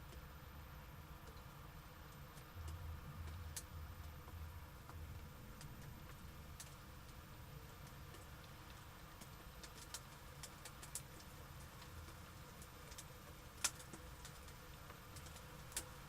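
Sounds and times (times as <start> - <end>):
faint low rumble: 0.0 - 9.6
raindrops ticking on hard surface: 1.2 - 16.0.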